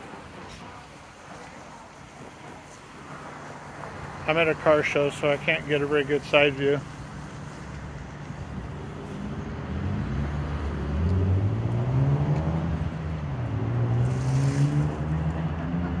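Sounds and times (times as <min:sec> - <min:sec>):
car engine revving: 0:08.9 - 0:16.0.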